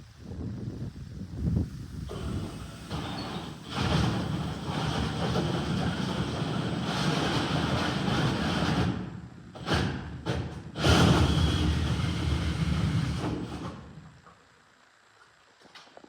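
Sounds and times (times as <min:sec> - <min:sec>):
drill cutting through drywall: 0:02.1 - 0:14.0.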